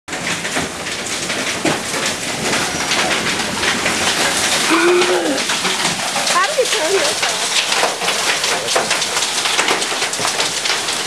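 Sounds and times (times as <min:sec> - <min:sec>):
hail and heavy rain pelting: 0:00.1 - 0:11.0.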